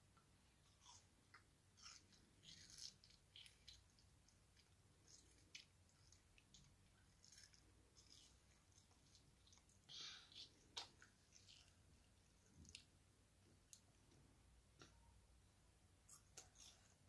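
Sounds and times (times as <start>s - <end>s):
toddler chewing wetly: 0.6s - 13.0s.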